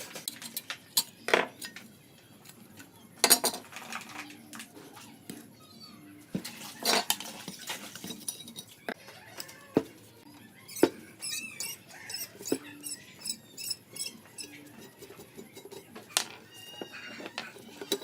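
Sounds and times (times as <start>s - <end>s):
short high squeaks: 10.7s - 14.6s.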